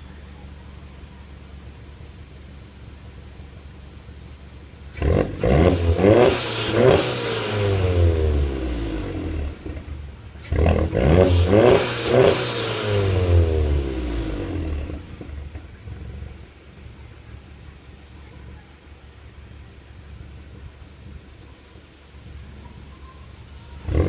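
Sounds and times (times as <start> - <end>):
car engine revving: 3.9 - 16.6, 23.8 - 24.0.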